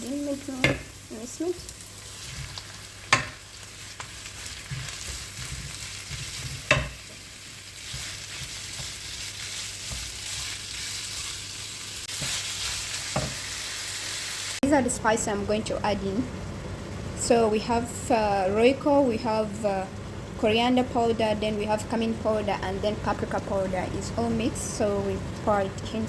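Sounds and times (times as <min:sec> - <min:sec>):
onions sizzling in a frying pan: 0:00.0 - 0:14.6
spoon knocking against pan: 0:03.1 - 0:03.4, 0:06.6 - 0:07.2.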